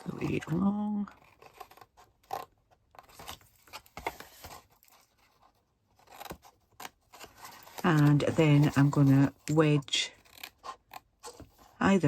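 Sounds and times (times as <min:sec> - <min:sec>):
card rustling: 0:00.0 - 0:11.9.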